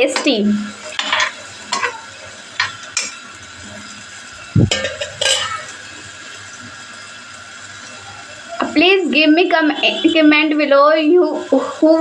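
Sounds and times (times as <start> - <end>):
food sizzling in hot oil: 0.0 - 12.0
utensil scraping in pan: 0.2 - 7.1.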